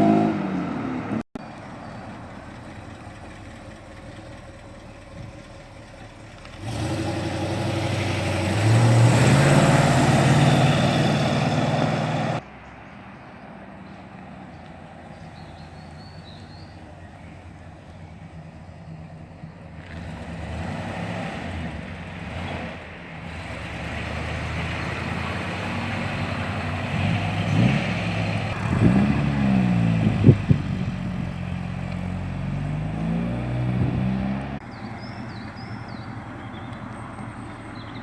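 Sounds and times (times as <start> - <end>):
car engine revving past: 6.5 - 12.4, 19.8 - 36.0.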